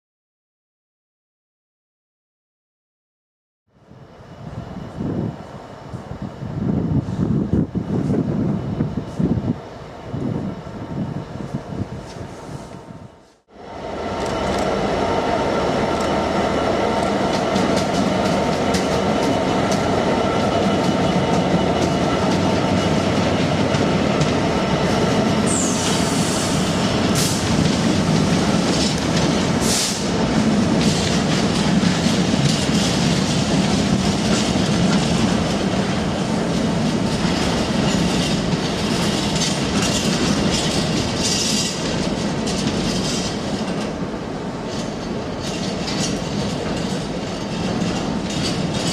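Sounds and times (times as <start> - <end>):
train wheels clattering over rails: 14.2 - 48.9.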